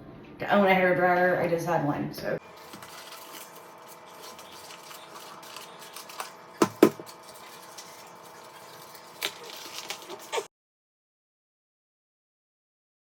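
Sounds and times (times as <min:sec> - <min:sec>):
cardboard and tape handling: 0:02.5 - 0:10.5.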